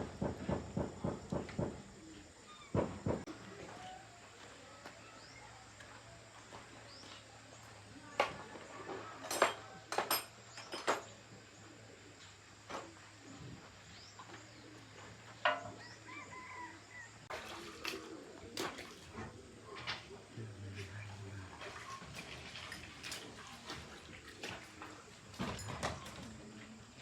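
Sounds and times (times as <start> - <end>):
birds chirping faintly: 1.7 - 27.0.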